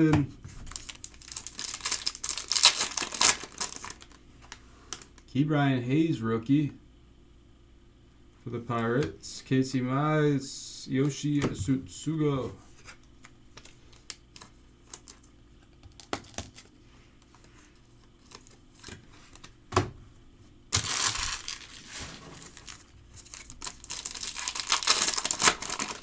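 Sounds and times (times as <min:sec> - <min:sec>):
foil wrapper tearing and crinkling: 0:00.7 - 0:04.2, 0:20.7 - 0:26.0.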